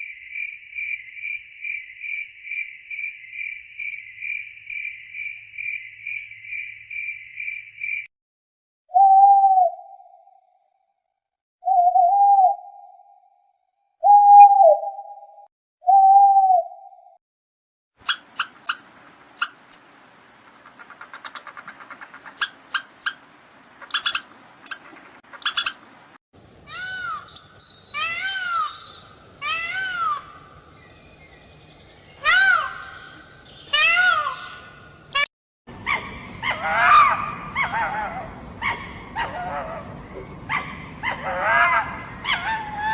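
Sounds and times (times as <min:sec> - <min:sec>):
whistle-like animal call: 0:08.9 - 0:10.2, 0:11.6 - 0:13.2, 0:14.0 - 0:17.1
animal chirps: 0:18.0 - 0:18.8, 0:19.4 - 0:19.8, 0:20.7 - 0:23.2, 0:23.8 - 0:25.8
drawn-out rising and falling animal calls: 0:18.0 - 0:42.9.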